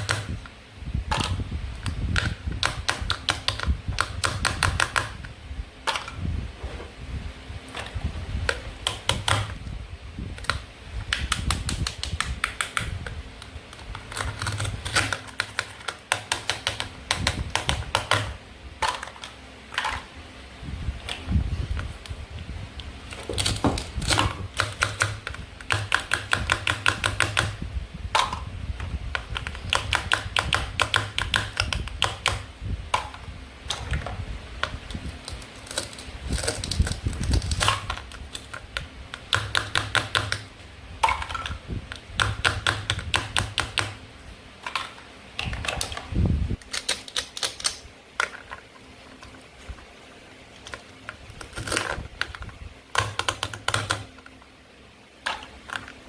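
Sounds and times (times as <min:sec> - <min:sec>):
plastic toy food clicking: 0:10.4 - 0:13.0, 0:13.8 - 0:19.9, 0:23.4 - 0:27.6, 0:29.2 - 0:33.1, 0:39.2 - 0:43.9, 0:46.6 - 0:48.3, 0:53.0 - 0:54.2.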